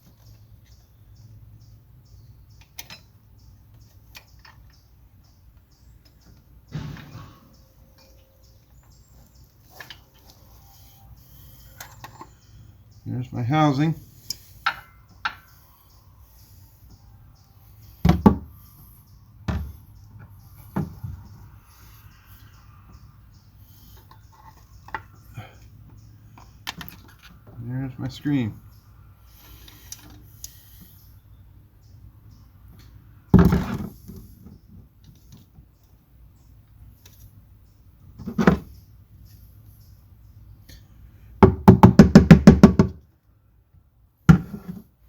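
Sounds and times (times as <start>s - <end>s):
loud clunks of object set down: 6.7s - 7.5s, 18.0s - 18.5s, 19.5s - 19.8s, 33.4s - 33.9s.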